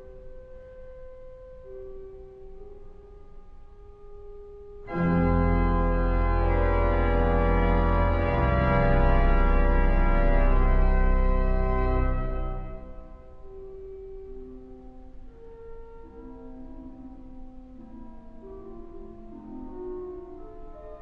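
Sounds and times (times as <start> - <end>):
pipe organ chords: 4.9 - 13.5.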